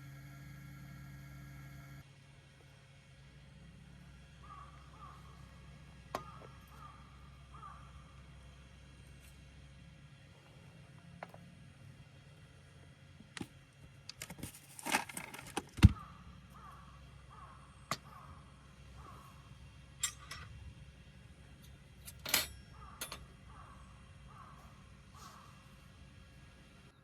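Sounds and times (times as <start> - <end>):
metal camping gear clinking: 20.0 - 20.6, 21.6 - 23.4.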